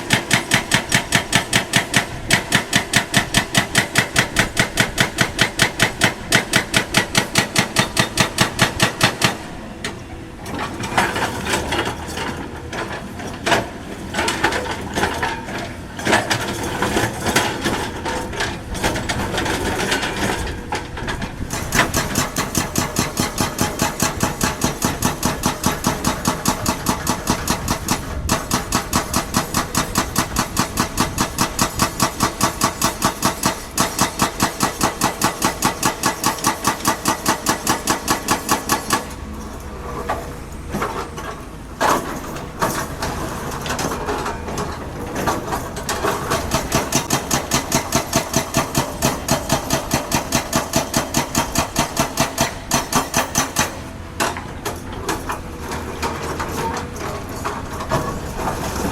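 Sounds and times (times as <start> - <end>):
clattering and scraping: 54.2 - 58.9.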